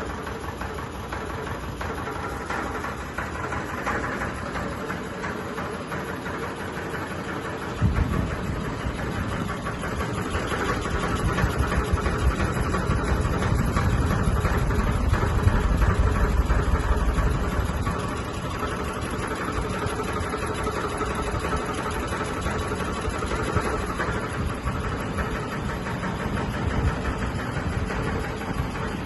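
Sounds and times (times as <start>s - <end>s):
ceiling fan whirring: 0.0s - 29.0s
rapid rattling rumble: 0.0s - 29.0s.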